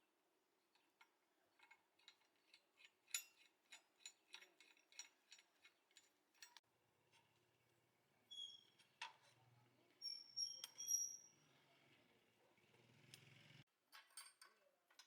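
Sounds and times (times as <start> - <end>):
faint light clicks and clinks: 0.8 - 7.2, 13.9 - 15.0.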